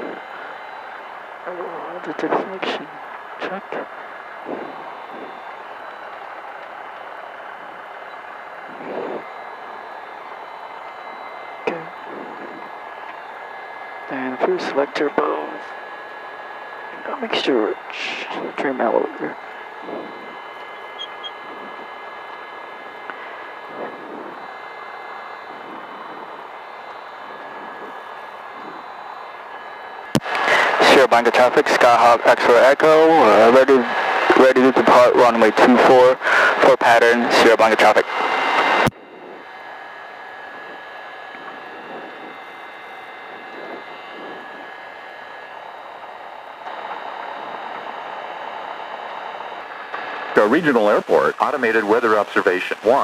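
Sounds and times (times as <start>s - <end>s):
small plane engine running: 0.0s - 53.0s.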